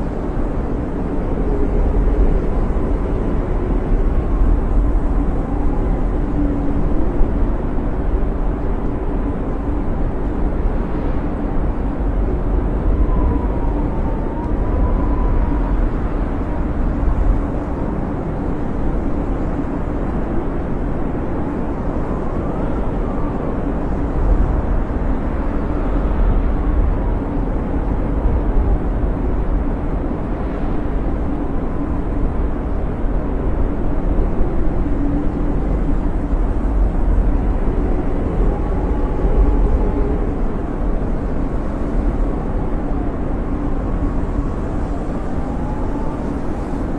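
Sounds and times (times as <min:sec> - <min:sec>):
faint whistling wind howls: 0:00.0 - 0:46.9
wind blowing with deep rumble: 0:00.0 - 0:46.9.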